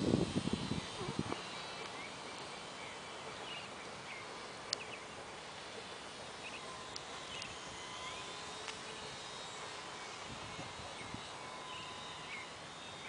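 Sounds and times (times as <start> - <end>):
outdoor background hiss: 0.0 - 13.0
sharp ticks: 4.7 - 4.9.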